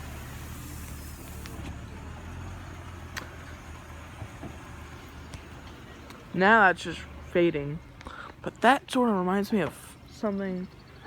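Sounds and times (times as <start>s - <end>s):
car engine running: 0.0s - 8.0s.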